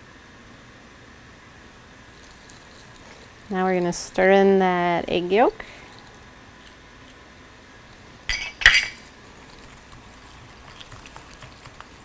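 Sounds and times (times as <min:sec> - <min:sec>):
metal utensil clinking ceramic mug: 0:08.3 - 0:09.1
whisk ticking in mug: 0:09.7 - 0:12.0.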